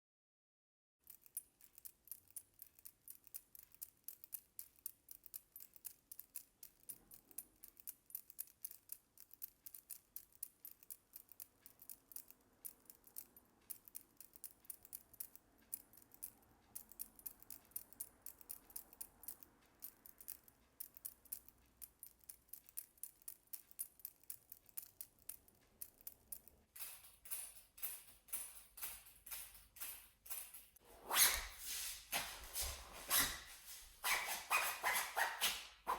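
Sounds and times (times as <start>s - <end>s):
jacket fittings jingling: 26.1s - 35.9s.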